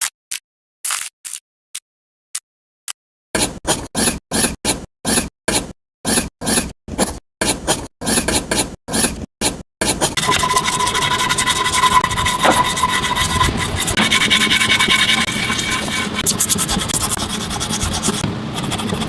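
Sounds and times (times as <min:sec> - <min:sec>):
abrasive rasping strokes: 0:10.2 - 0:16.6
continuous scraping with high whine: 0:10.2 - 0:19.0.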